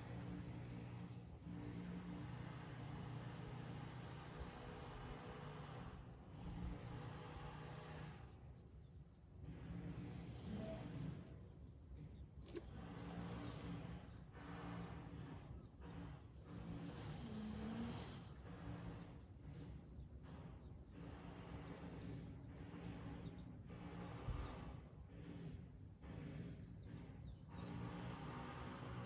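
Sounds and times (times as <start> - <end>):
small birds chirping: 6.4 - 24.8, 26.1 - 29.0.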